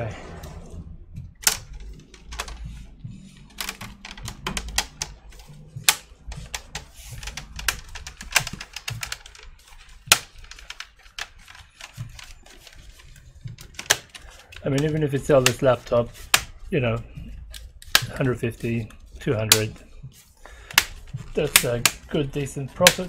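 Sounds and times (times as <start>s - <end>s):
plastic laptop parts clicking: 1.3s - 19.8s, 20.6s - 23.0s
plastic snaps: 20.6s - 22.2s.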